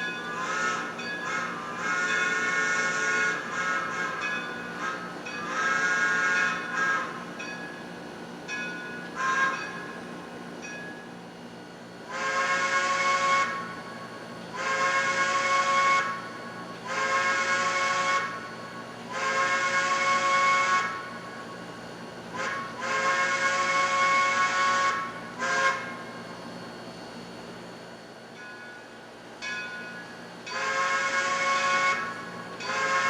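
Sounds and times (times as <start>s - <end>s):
model steam whistle chord: 0.0s - 7.7s, 8.9s - 10.0s, 12.1s - 21.4s, 22.3s - 26.0s, 29.7s - 33.0s.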